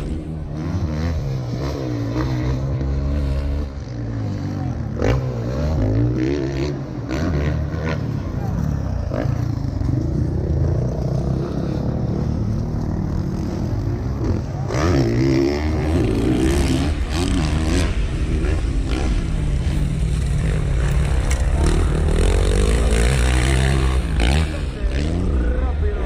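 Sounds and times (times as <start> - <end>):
motocross bikes revving: 0.0 - 26.0.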